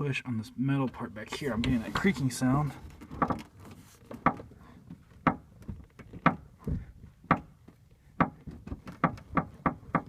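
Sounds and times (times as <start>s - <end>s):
metal body panel creaking: 1.2s - 10.0s.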